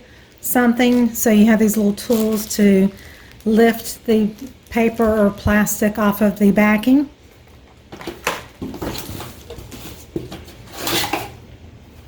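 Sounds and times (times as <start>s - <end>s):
packaging rustling: 0.1s - 5.9s, 7.3s - 11.4s.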